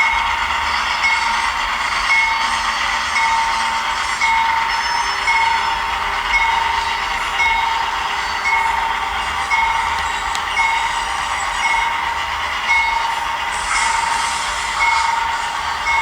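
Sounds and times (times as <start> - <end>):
diesel locomotive sound: 0.0 - 16.0
hiss of model running: 13.0 - 16.0.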